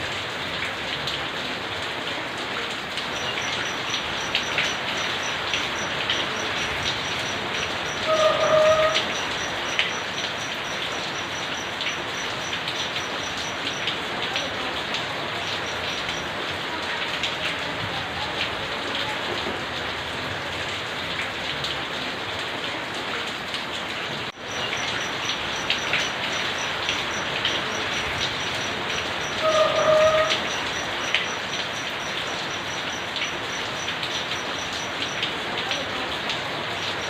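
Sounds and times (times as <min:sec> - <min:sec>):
rain falling and splashing: 0:00.0 - 0:37.0
water drips: 0:00.0 - 0:37.0
faint high ticking: 0:03.1 - 0:14.6, 0:24.3 - 0:35.8.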